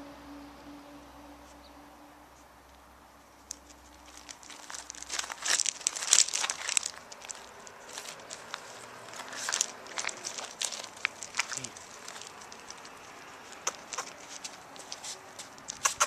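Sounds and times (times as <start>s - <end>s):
crinkly material crumpling: 3.4s - 16.0s.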